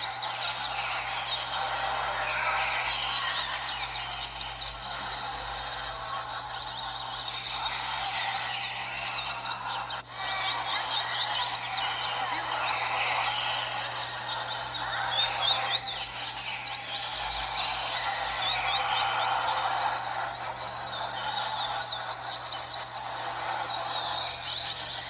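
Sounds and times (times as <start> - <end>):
many birds chirping: 0.0 - 25.0.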